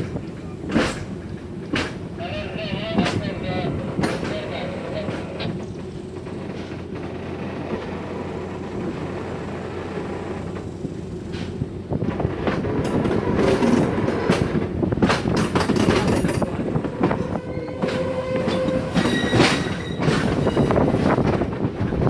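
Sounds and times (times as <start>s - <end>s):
train rumbling: 0.0s - 22.0s
wheels clacking over rail joints: 0.0s - 22.0s
wheel squeal: 16.4s - 21.2s.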